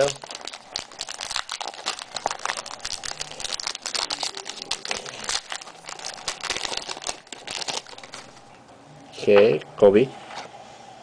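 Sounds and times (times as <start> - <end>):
wrapper being torn and crinkled: 0.0 - 8.5.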